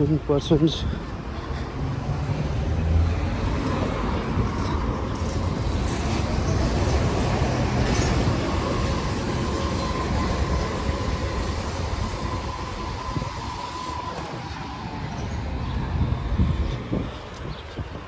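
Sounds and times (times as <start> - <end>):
heavy vehicle rumbling past: 1.1 - 10.0
high squeal: 6.0 - 15.8.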